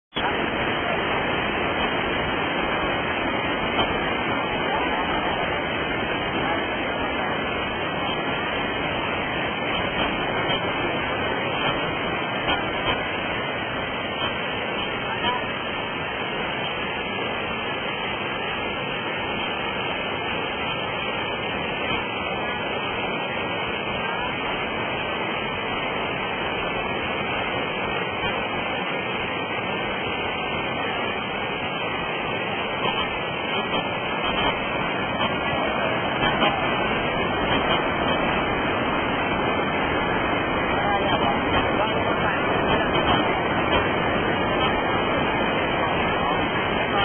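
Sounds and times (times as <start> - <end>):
waterfall rushing: 0.1 - 47.0.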